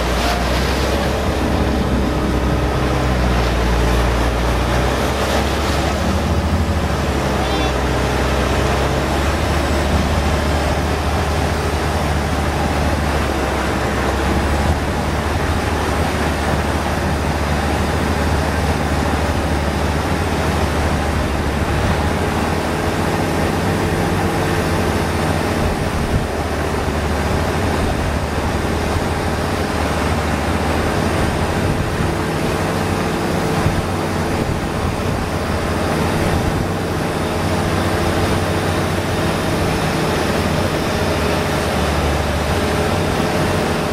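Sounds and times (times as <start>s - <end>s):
boat engine droning: 0.0s - 43.9s
water rushing: 0.0s - 43.9s
wind: 0.0s - 43.9s.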